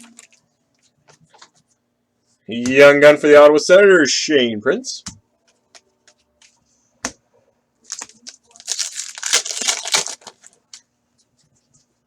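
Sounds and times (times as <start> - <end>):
foil wrapper tearing and crinkling: 7.9 - 10.6.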